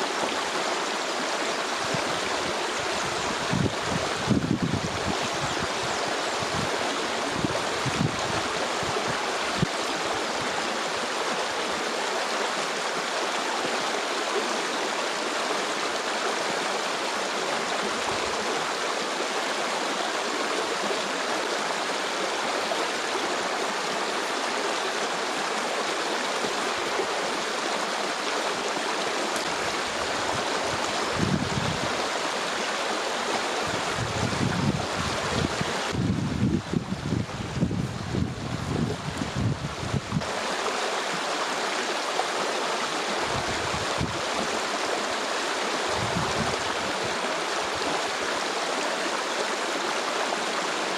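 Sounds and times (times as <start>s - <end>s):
stream flowing: 0.0s - 50.9s
wind buffeting microphone: 1.8s - 9.7s, 29.5s - 32.0s, 33.6s - 40.3s, 43.2s - 44.5s, 45.9s - 48.0s.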